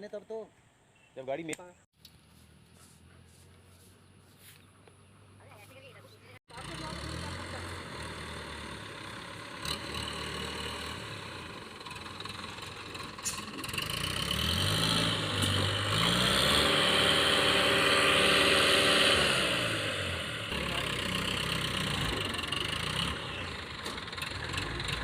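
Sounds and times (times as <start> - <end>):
heavy diesel engine revving: 6.5 - 25.0.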